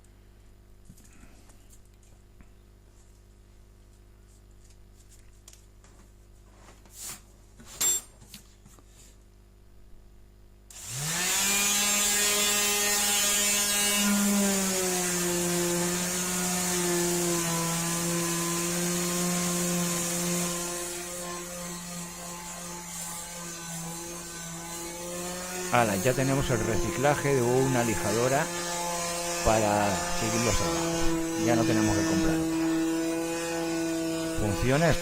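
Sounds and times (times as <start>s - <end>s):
electric orbital sander running: 10.7s - 35.0s.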